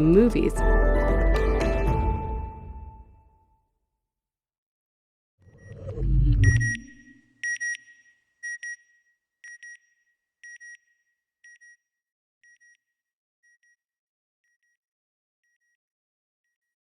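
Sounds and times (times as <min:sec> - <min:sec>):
electronic double beep: 0:05.5 - 0:07.8
deep whoosh: 0:05.6 - 0:07.2.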